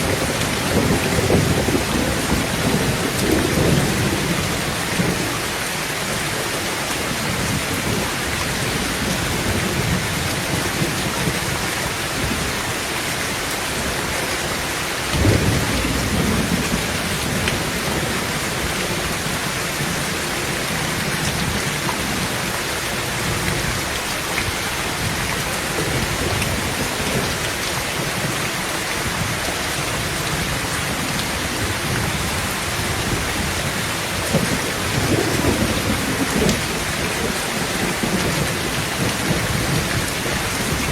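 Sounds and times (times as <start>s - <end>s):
thunder rumbling: 0.0s - 5.4s, 15.0s - 22.4s, 30.3s - 40.9s
rain on a tin roof: 0.0s - 40.9s.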